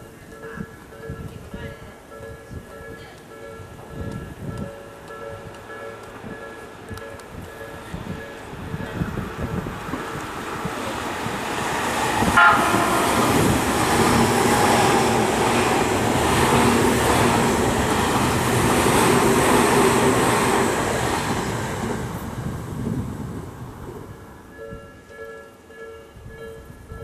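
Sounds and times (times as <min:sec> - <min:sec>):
train wheels rumbling on rail: 0:00.1 - 0:25.2
train horn toot: 0:12.3 - 0:13.4.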